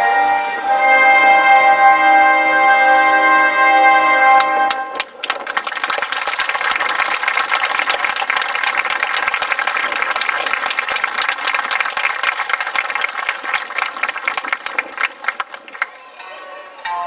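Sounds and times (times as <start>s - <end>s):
audience clapping: 4.4s - 16.2s.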